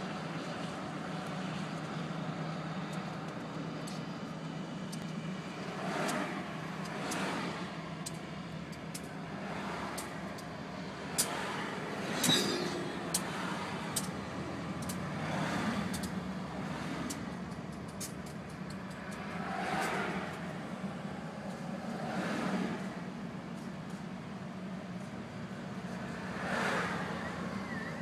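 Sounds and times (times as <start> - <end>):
vehicle running: 0.0 - 28.0
sharp clicks and rattles: 8.0 - 9.2, 13.1 - 14.2, 14.8 - 15.0, 15.9 - 16.2, 17.0 - 20.5.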